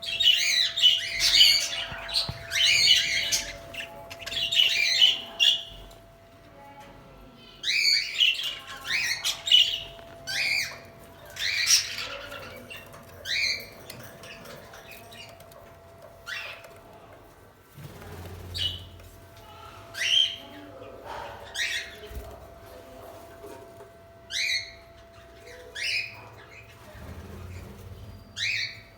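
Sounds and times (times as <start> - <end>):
budgerigars chirping and squawking: 0.0 - 6.0, 7.5 - 17.0, 17.9 - 23.6, 24.2 - 28.9.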